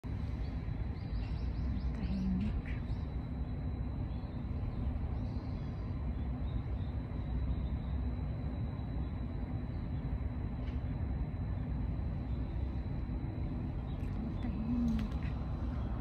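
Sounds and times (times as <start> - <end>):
small birds chirping: 0.1 - 10.7, 11.4 - 16.0.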